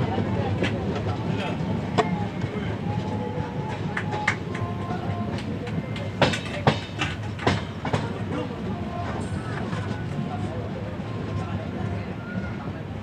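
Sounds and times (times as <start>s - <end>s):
train wheels rumbling on rails: 0.0s - 13.0s
clacks over rail joints: 3.8s - 8.5s.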